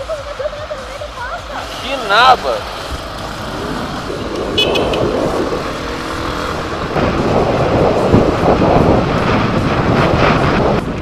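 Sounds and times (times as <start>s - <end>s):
motorcycle engine running: 0.0s - 11.0s
wind rushing over microphone: 2.2s - 11.0s.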